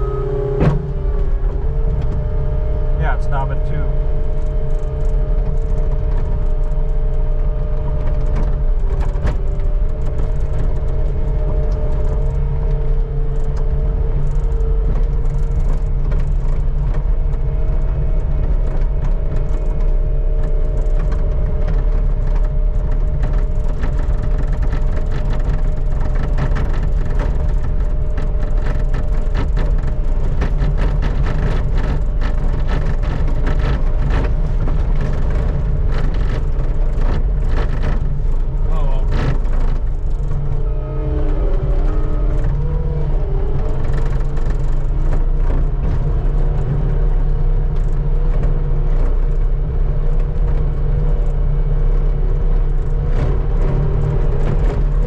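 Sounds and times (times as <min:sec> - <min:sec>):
whining tones: 0:00.0 - 0:16.6, 0:30.9 - 0:49.4
skid steer engine running: 0:00.0 - 0:55.0.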